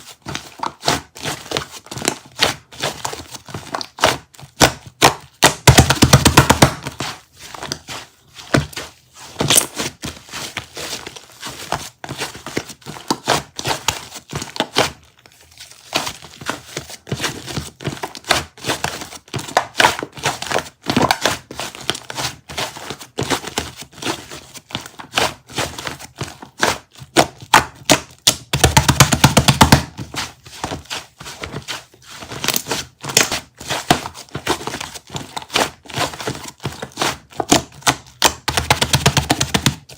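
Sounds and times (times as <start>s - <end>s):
crinkly material crumpling: 6.8s - 27.1s, 29.8s - 37.8s.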